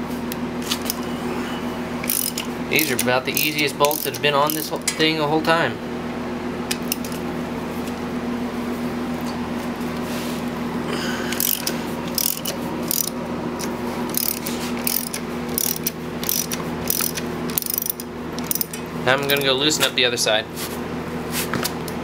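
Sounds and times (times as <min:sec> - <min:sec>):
steady low hum: 0:00.0 - 0:22.0
ratchet wrench clicking: 0:02.0 - 0:04.8, 0:11.3 - 0:13.2, 0:14.1 - 0:19.5.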